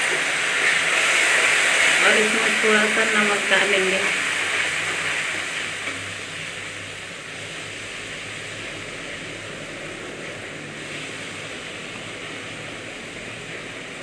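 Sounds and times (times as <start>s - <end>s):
masala frying in oil: 0.0s - 14.0s.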